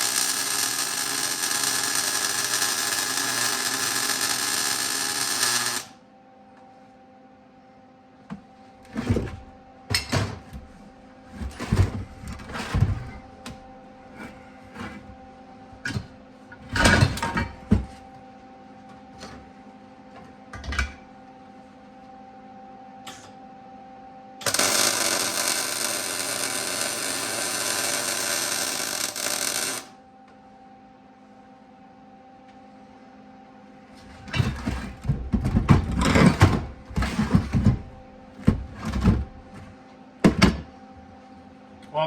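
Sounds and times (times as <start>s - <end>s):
welding arc hiss: 0.0s - 5.9s, 24.4s - 29.9s.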